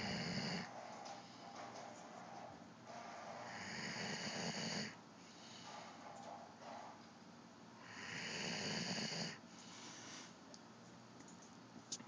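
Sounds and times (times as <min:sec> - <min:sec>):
dog snoring: 0:00.0 - 0:01.6, 0:03.0 - 0:05.9, 0:07.8 - 0:09.4
dog breathing: 0:02.9 - 0:06.1, 0:07.8 - 0:10.4.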